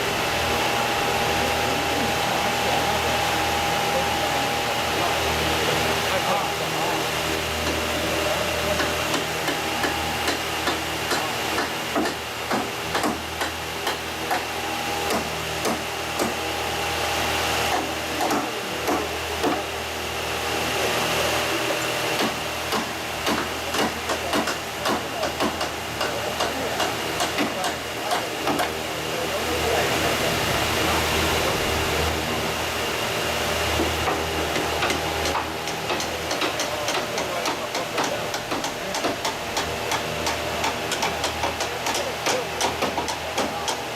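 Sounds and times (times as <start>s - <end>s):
machine humming: 0.0s - 43.9s
knocks of wooden parts: 8.8s - 14.4s, 33.8s - 43.8s
sharp knocks: 8.8s - 14.4s.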